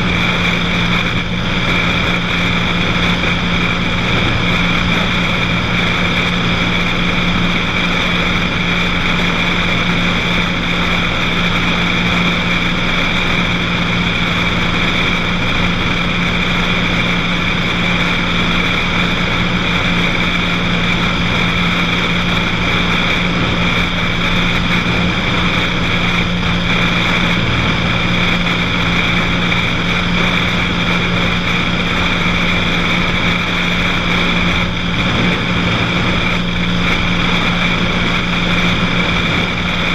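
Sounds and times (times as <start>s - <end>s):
airplane engine and propeller droning: 0.0s - 39.9s.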